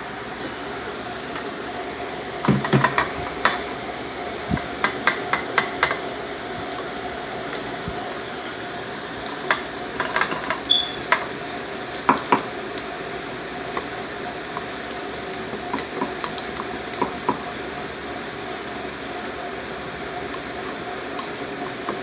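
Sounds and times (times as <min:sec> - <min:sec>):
steady background hum: 0:00.0 - 0:22.0
brief high squeak: 0:10.7 - 0:11.0.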